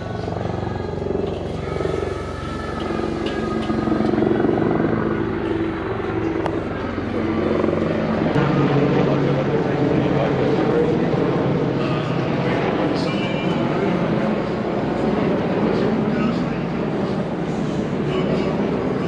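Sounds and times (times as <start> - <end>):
low engine drone: 0.0 - 19.0
murmur of surroundings: 0.0 - 19.0.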